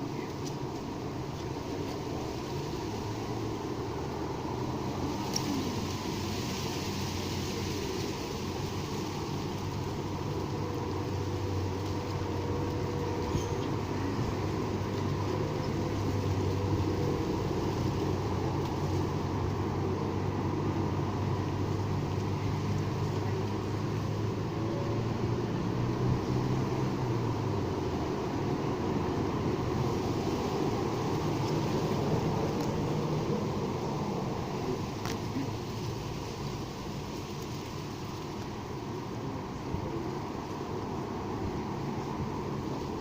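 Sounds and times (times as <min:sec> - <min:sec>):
low engine drone: 0:00.0 - 0:43.0
road traffic hum: 0:00.0 - 0:43.0.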